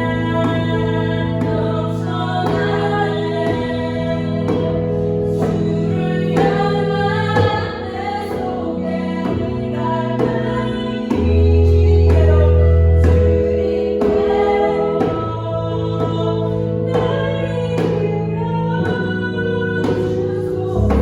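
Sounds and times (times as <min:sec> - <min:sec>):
piano accompaniment: 0:00.0 - 0:21.0
woman singing: 0:00.0 - 0:21.0
deep bass note: 0:20.8 - 0:21.0.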